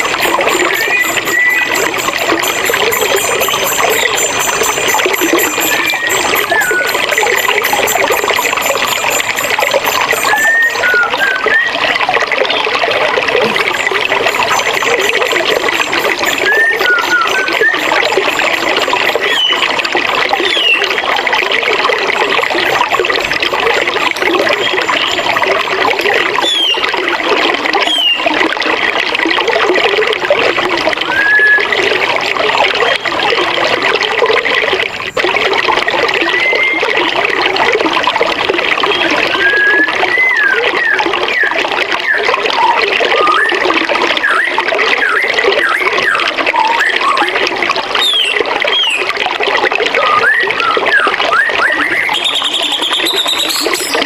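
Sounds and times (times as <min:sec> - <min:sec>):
birds chirping: 0:00.0 - 0:11.5, 0:13.6 - 0:19.8, 0:51.7 - 0:54.0
river flowing: 0:00.0 - 0:40.0.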